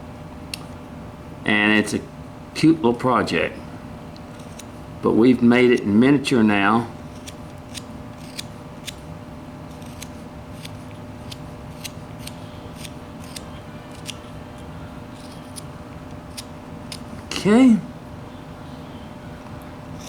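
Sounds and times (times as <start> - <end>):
steady low hum: 0.0 - 20.0
knife cutting wood clicks: 7.1 - 9.0.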